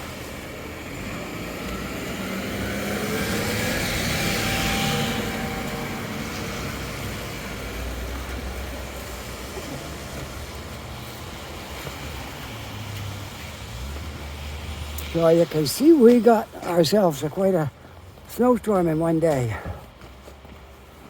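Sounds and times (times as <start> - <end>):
car driving past: 0.0 - 16.2
low traffic noise: 0.0 - 21.0.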